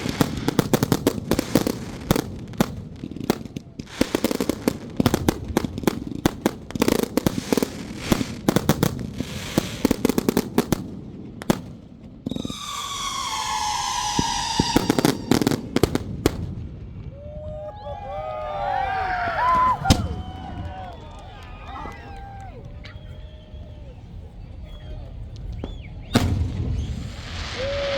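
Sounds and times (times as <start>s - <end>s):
firecrackers popping: 0.0s - 27.9s
high whistle dropping in pitch: 12.4s - 15.6s.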